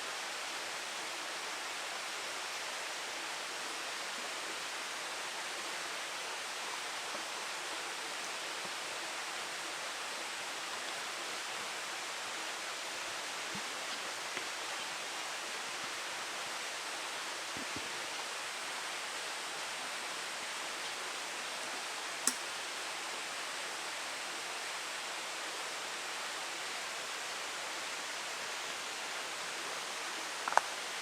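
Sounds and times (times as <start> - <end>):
water rushing: 1.6 - 22.2.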